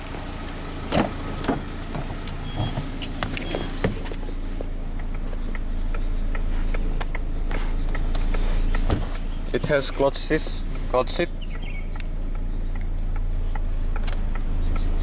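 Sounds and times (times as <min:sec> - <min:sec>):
car engine idling: 0:00.0 - 0:15.0
sharp switch clicks: 0:05.0 - 0:08.8.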